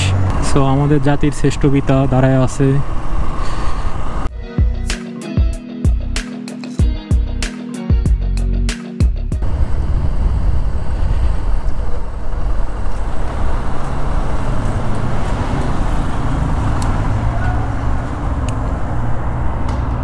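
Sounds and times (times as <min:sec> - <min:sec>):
motorcycle road noise rumble: 0:00.0 - 0:04.3, 0:09.4 - 0:20.0.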